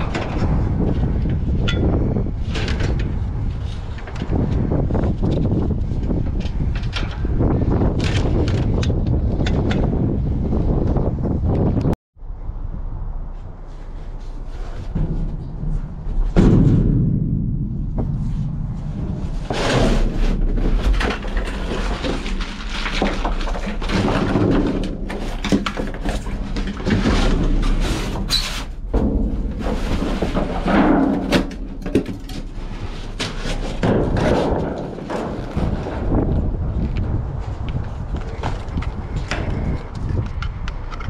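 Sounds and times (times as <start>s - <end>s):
thunks knocks and clatter: 0.0s - 11.8s, 14.4s - 37.2s, 37.8s - 41.0s
rustling and scraping: 13.2s - 41.0s
heavy thud: 14.6s - 21.2s, 26.9s - 36.3s.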